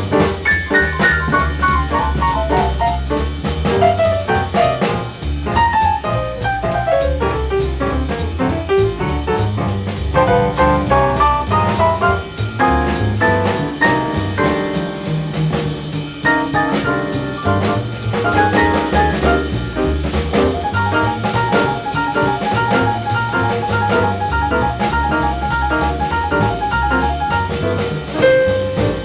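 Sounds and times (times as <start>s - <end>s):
jazz band playing: 0.0s - 29.0s
repeating two-note figure: 20.4s - 28.0s.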